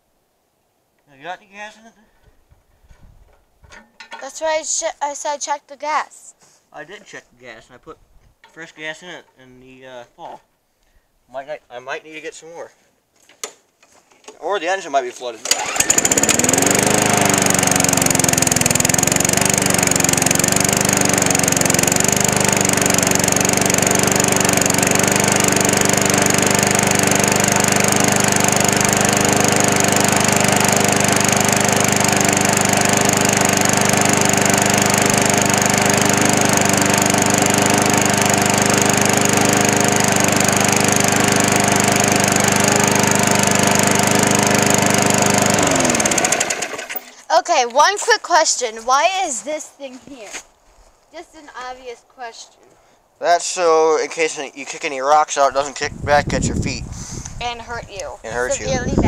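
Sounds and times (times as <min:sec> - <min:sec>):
lawn mower engine running: 0:15.4 - 0:47.8, 0:57.4 - 0:59.0.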